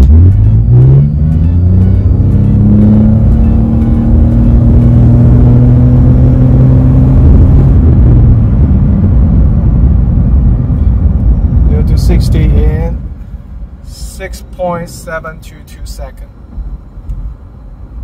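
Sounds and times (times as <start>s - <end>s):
car engine revving high: 0.0s - 12.7s.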